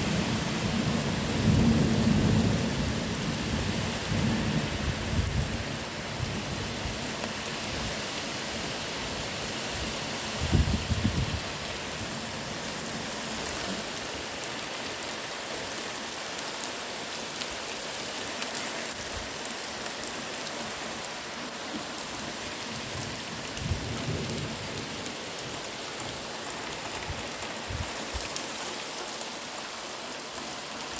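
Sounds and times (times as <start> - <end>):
heavy rain: 0.0 - 30.9
thunder rumbles: 22.9 - 25.0.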